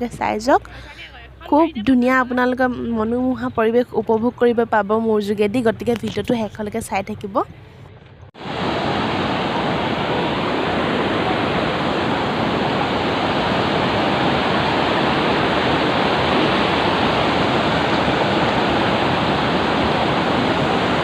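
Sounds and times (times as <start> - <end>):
water rushing and pouring: 8.4 - 21.0.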